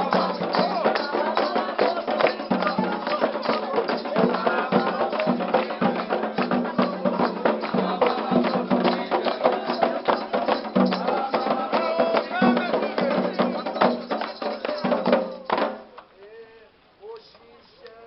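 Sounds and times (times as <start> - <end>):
fast hand percussion: 0.0 - 15.9
voices singing: 0.0 - 18.0.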